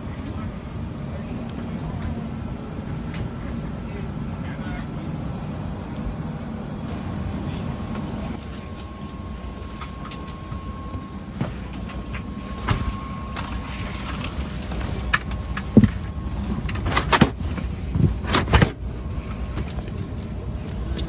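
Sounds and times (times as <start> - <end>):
air conditioning hum: 0.0 - 21.0
faint steady tone: 6.8 - 17.6.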